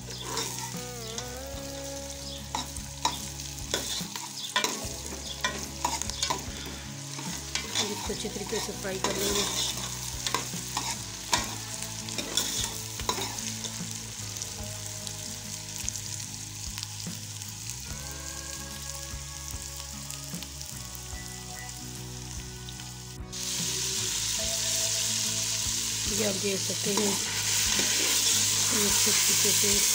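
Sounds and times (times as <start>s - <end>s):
onions sizzling in oil: 0.0s - 29.9s
metal spoon scraping pot: 0.1s - 0.8s, 7.2s - 11.6s, 27.0s - 29.3s.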